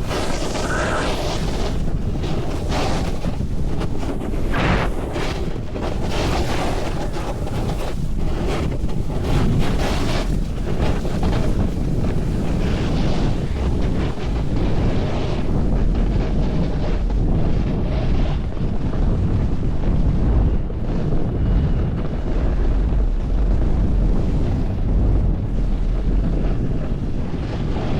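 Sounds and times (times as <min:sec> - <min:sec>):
swells of hiss: 0:00.0 - 0:02.8
wind buffeting microphone: 0:00.0 - 0:27.9.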